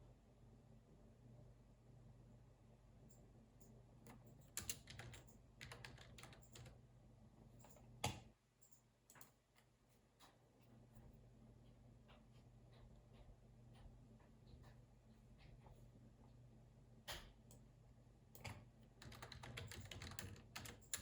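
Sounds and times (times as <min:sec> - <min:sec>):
faint low hum: 0:00.0 - 0:21.0
computer keyboard typing: 0:04.1 - 0:06.8, 0:18.4 - 0:21.0.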